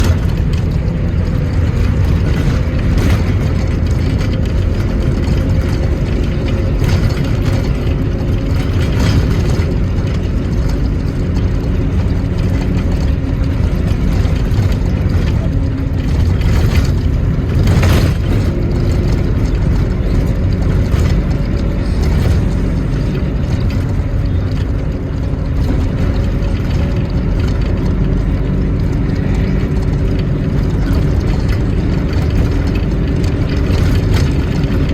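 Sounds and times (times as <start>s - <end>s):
engine rumbling: 0.0s - 34.9s
knocks and rattles: 0.0s - 34.9s.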